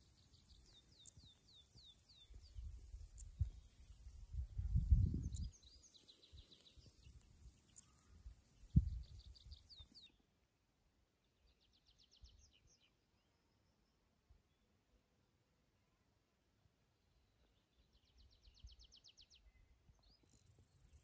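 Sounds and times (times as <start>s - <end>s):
songbirds trilling: 0.0s - 10.1s.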